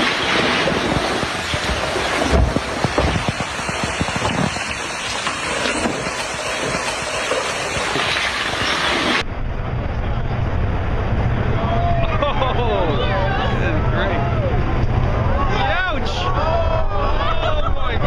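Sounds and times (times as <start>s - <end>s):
debris flow rushing: 0.0s - 9.2s
sharp cracks and knocks: 0.0s - 9.2s
low steady drone: 2.6s - 18.0s.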